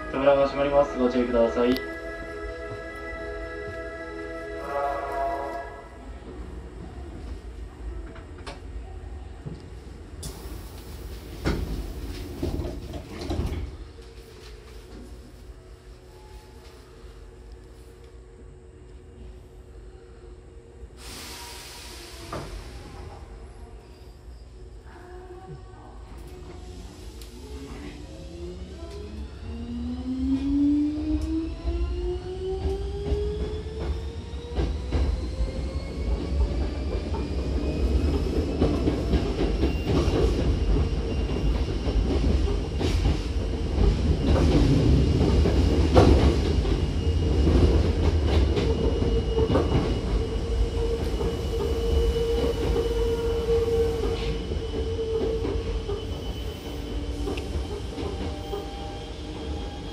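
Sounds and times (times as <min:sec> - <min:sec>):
train rolling rumble: 0:00.0 - 0:59.9.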